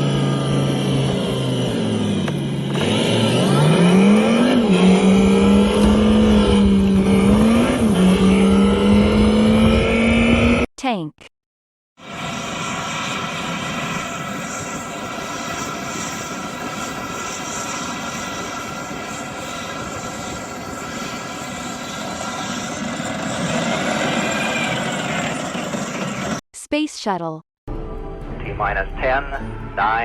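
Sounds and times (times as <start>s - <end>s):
tank engine whine and rumble: 0.0s - 8.1s.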